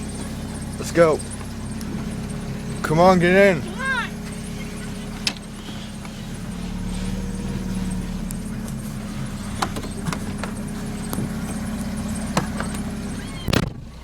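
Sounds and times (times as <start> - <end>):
car engine idling: 0.0 - 14.0
sharp clicks and knocks: 5.2 - 5.5, 9.6 - 13.9.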